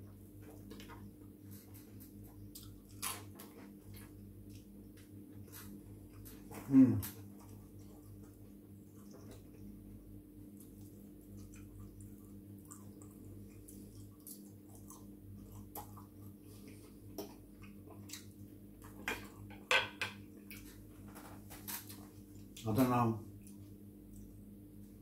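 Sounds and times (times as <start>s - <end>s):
low steady hum: 0.0s - 25.0s
person chewing: 1.5s - 9.8s, 10.5s - 19.4s.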